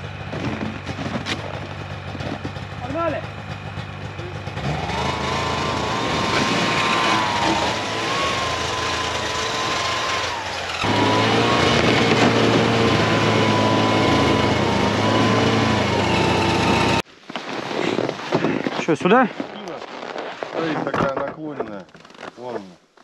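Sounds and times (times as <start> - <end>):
snowmobile engine whining: 0.0 - 17.0.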